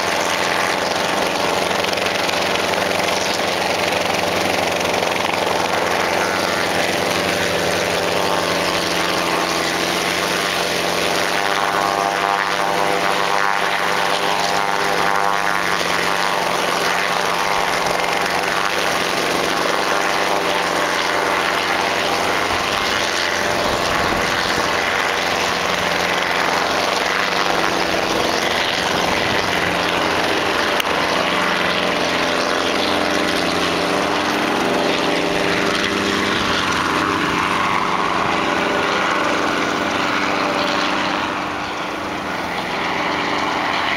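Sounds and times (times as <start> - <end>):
helicopter engine and rotor: 0.0 - 43.9.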